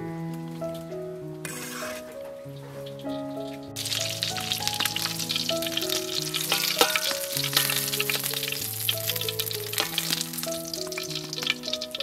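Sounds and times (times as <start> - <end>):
soft background music: 0.0 - 12.0
meat frying in hot oil: 3.8 - 12.0.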